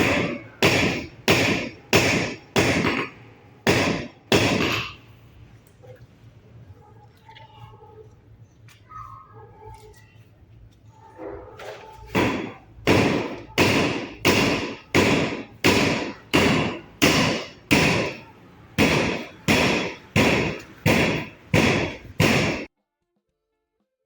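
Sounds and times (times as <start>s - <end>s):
sharp strikes: 0.0s - 5.0s, 12.2s - 22.7s.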